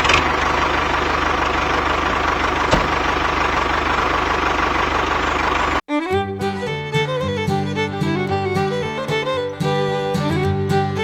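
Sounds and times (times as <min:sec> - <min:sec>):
small engine running: 0:00.0 - 0:05.8.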